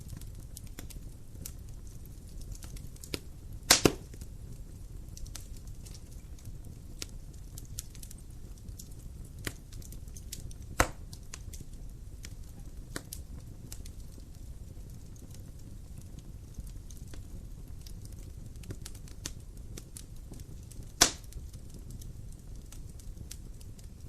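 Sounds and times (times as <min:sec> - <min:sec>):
low rumble of flames: 0:00.0 - 0:24.0
wood fire crackling and popping: 0:00.0 - 0:24.0.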